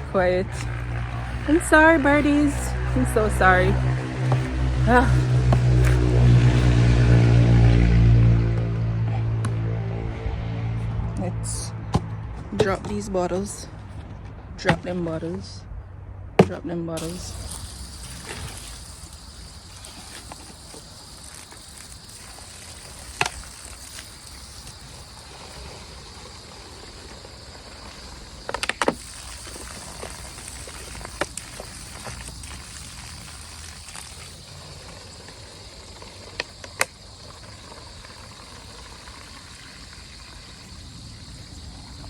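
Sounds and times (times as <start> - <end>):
high-pitched drone: 0.0 - 11.9
low rumble: 0.0 - 16.4.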